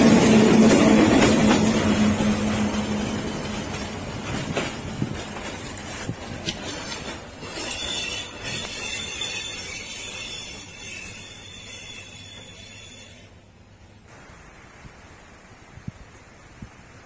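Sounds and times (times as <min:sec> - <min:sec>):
train wheels clacking: 0:00.0 - 0:13.3
high wheel squeal: 0:06.7 - 0:13.4.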